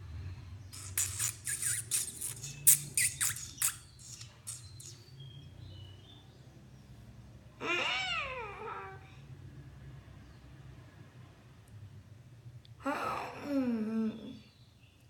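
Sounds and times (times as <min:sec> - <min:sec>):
faint thin bird whistles: 0:00.7 - 0:05.3
bird squawking: 0:00.8 - 0:05.0.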